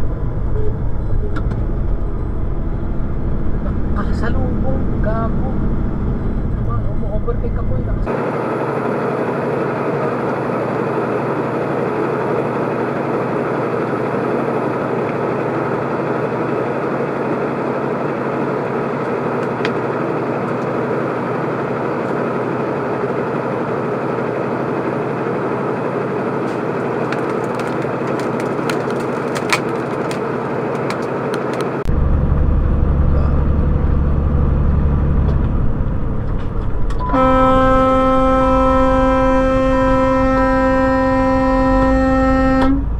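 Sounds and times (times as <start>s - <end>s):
deep rumble: 0.0s - 8.1s, 31.7s - 42.9s
vehicle road and engine noise: 0.0s - 42.9s
sharp cracks: 26.5s - 31.8s.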